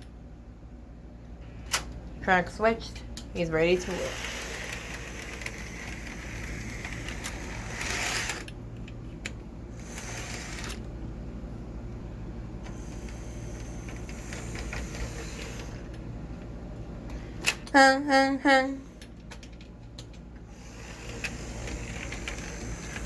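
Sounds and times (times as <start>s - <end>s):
model train motor whirring: 3.5s - 8.6s, 9.7s - 10.9s, 12.7s - 16.0s, 20.5s - 23.0s.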